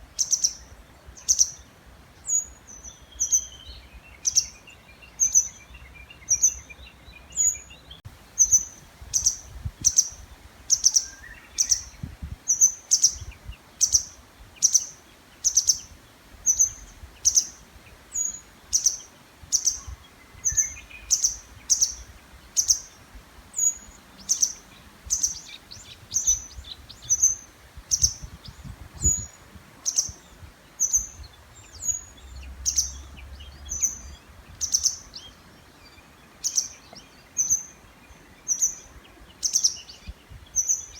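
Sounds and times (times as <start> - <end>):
songbird high sharp call: 8.4 - 23.0.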